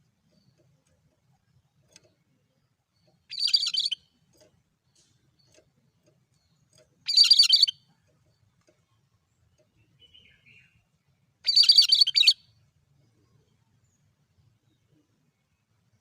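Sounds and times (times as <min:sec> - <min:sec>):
bird chattering call: 0:07.1 - 0:07.7.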